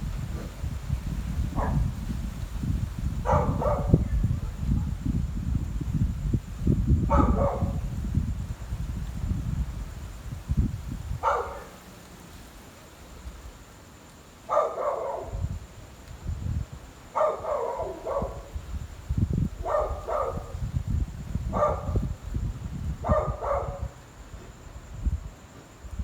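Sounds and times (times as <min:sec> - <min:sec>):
dog barking: 0:01.5 - 0:01.9, 0:03.2 - 0:04.9, 0:07.1 - 0:07.8, 0:11.2 - 0:11.8, 0:14.5 - 0:15.4, 0:17.1 - 0:18.5, 0:19.6 - 0:20.6, 0:21.5 - 0:22.0, 0:23.0 - 0:24.0.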